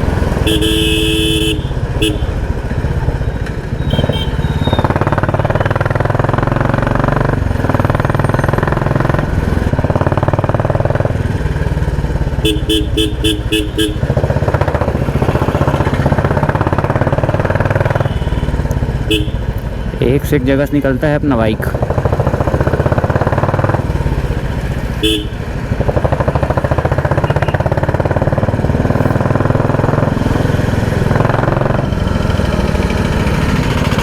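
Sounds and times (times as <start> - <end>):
motorcycle engine with loud exhaust: 0.0 - 34.0
vehicle horn short beeps: 0.5 - 2.4, 3.8 - 5.0, 12.4 - 14.0, 19.1 - 19.5, 25.0 - 25.4, 27.2 - 27.6.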